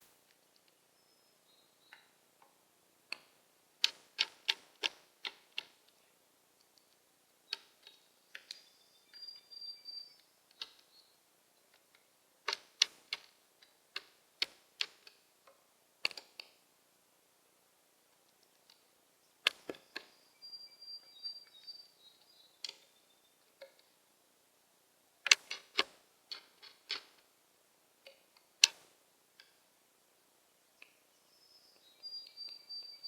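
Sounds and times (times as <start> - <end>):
starling clicking: 3.1 - 6.0, 6.6 - 9.5, 10.1 - 11.0, 25.2 - 27.2
thin high bird whistles: 19.9 - 23.3, 31.2 - 33.0.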